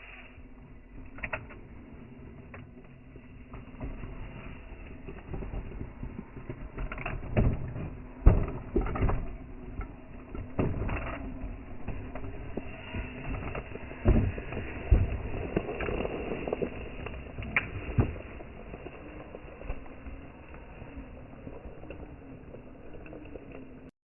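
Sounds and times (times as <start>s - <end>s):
low rumble: 0.0s - 23.9s
tyres knocking and scraping rock: 5.2s - 20.0s.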